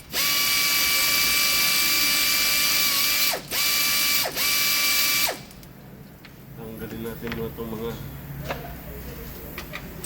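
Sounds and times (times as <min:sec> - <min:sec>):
power tool motor whining: 0:00.1 - 0:05.5.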